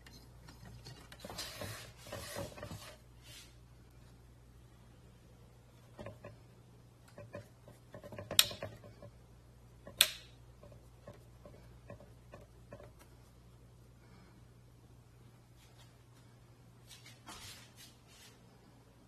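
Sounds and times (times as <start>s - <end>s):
low steady hum: 0.0s - 19.0s
light clicks and knocks: 5.8s - 9.2s, 9.8s - 13.2s.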